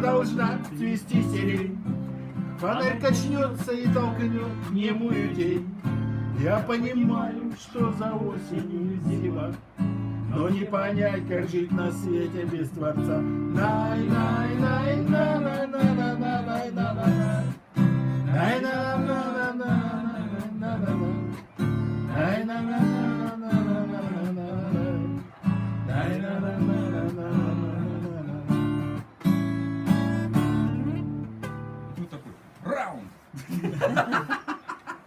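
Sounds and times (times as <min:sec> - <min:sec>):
man singing: 0:00.0 - 0:28.9
acoustic guitar strumming: 0:00.0 - 0:32.4.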